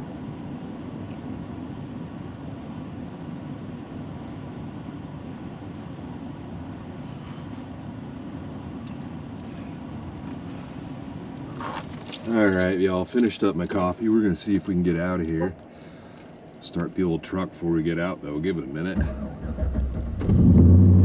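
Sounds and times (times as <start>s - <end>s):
low rumbling drone: 19.0s - 21.0s.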